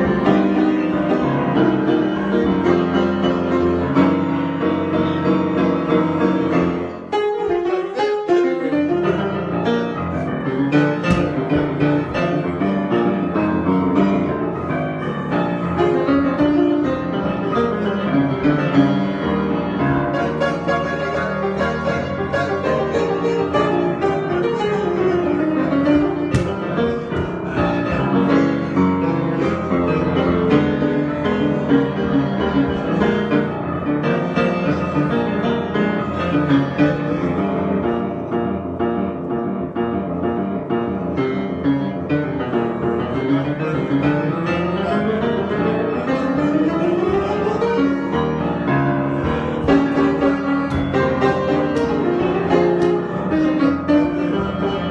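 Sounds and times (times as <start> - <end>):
solo piano improvisation: 0.0 - 54.9.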